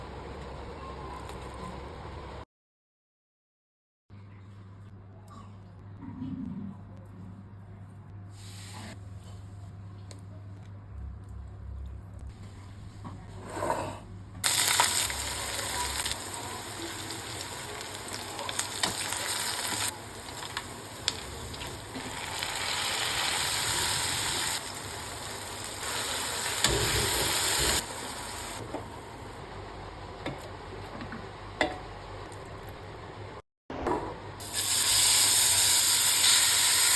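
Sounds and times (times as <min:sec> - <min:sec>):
food sizzling in pan: 0:14.4 - 0:28.6, 0:34.4 - 0:36.9.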